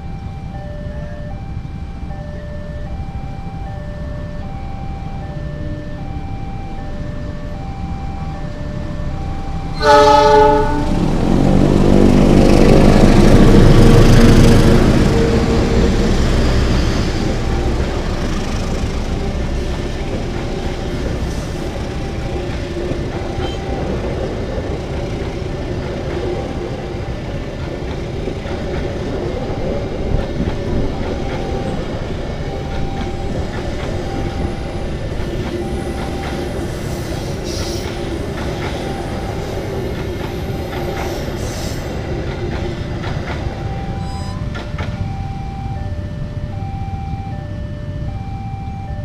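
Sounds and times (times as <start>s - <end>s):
crossing warning signal tone: 0.0s - 49.0s
train wheels rumbling on rails: 8.2s - 46.6s.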